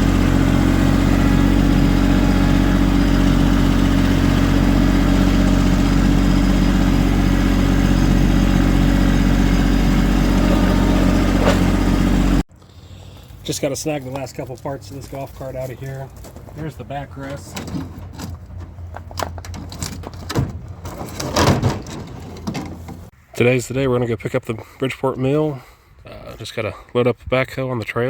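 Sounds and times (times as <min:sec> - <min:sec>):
tractor diesel engine running: 0:00.0 - 0:17.5.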